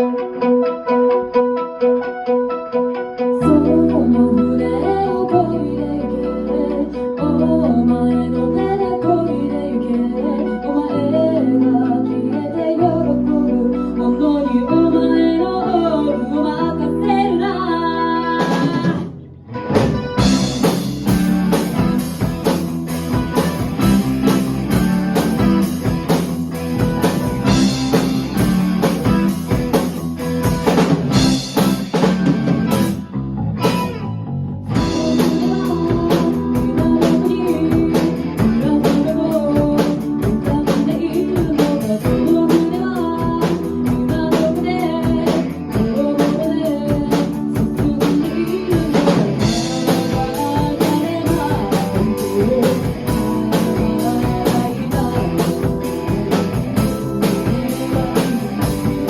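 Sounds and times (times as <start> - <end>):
rock band playing: 0.0 - 59.0
person singing: 3.2 - 19.1, 34.8 - 59.0.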